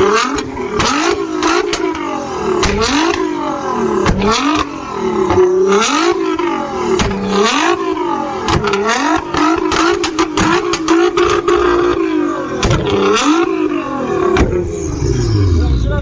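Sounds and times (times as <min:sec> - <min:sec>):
exhaust pops and bangs: 0:00.0 - 0:14.8
sports car engine revving: 0:00.0 - 0:16.0.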